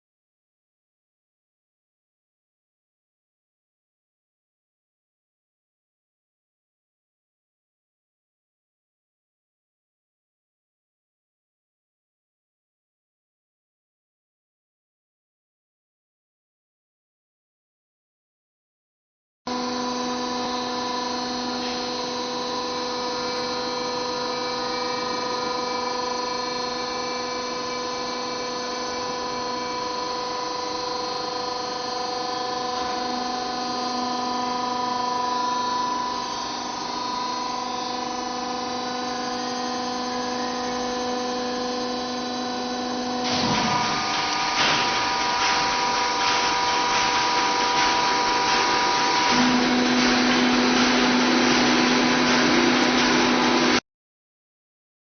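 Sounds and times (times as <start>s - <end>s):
loud noisy machine sound: 19.5s - 53.8s
washing machine hum: 40.4s - 53.8s.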